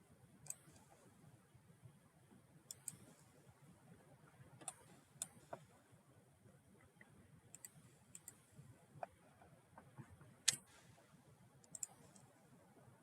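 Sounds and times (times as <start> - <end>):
computer mouse clicks: 0.4 - 1.0, 2.7 - 3.2, 4.6 - 5.7, 7.0 - 8.4, 9.0 - 10.8, 11.6 - 12.3.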